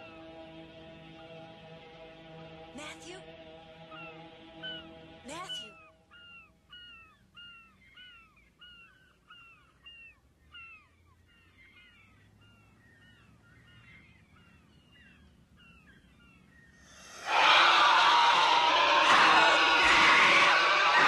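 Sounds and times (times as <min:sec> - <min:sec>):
birds calling: 0:03.6 - 0:21.0
piercing shriek: 0:17.0 - 0:21.0.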